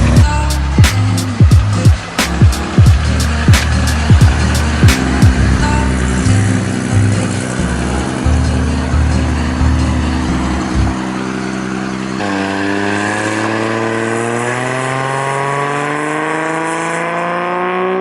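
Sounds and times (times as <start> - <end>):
pounding low music beat: 0.0 - 11.0
car engine accelerating: 0.0 - 18.0.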